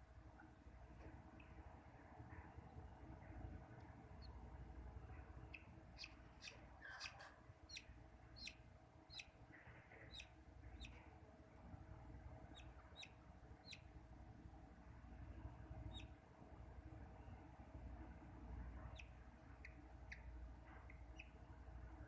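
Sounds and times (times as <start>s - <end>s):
budgerigar chirping: 5.4s - 11.0s, 12.5s - 13.9s, 15.9s - 16.2s, 18.8s - 21.4s.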